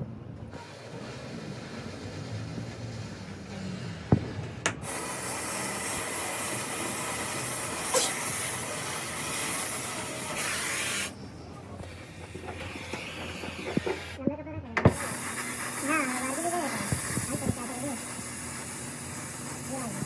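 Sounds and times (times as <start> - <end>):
compressed air hissing: 4.7 - 14.2, 14.8 - 20.0.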